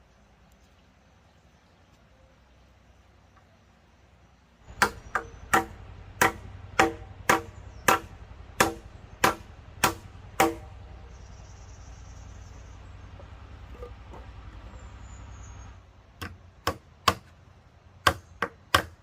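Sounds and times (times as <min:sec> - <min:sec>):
tool striking wood: 0:04.7 - 0:10.8, 0:16.2 - 0:17.4, 0:18.0 - 0:19.0.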